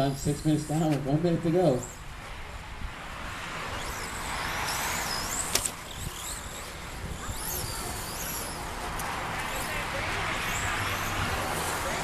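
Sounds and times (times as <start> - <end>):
toy truck motors whining: 3.6 - 12.0.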